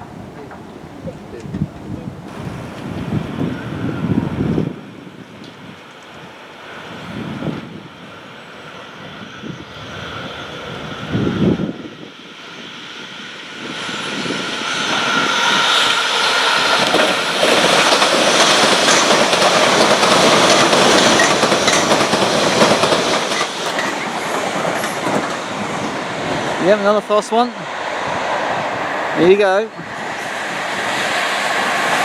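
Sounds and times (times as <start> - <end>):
electric train passing: 0.0 - 32.0
wheels clattering over rails: 15.9 - 26.9.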